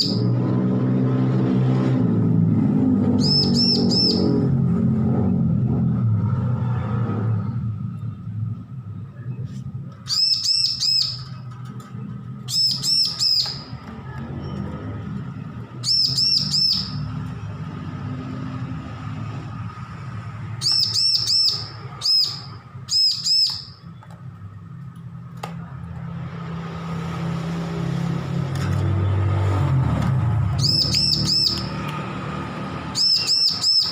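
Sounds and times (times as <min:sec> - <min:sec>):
bird calling high notes: 0:03.2 - 0:04.4, 0:32.9 - 0:33.9.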